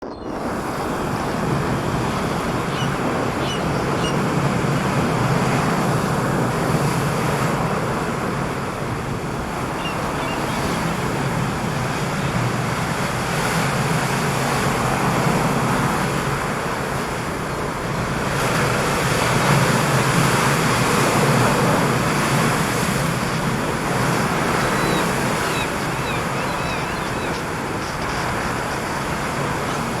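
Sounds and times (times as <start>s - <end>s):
strong wind: 0.0s - 30.0s
ocean surf roaring: 0.3s - 30.0s.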